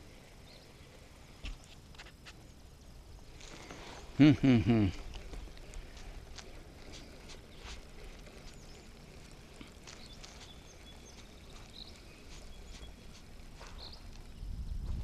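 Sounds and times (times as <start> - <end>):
low wind rumble: 2.5 - 15.0
small clicks: 5.0 - 14.4.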